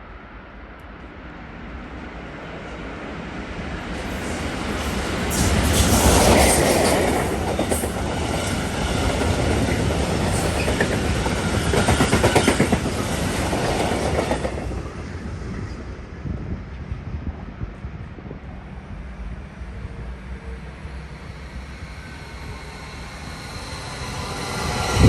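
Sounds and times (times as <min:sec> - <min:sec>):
train wheels clattering: 0:04.0 - 0:14.8.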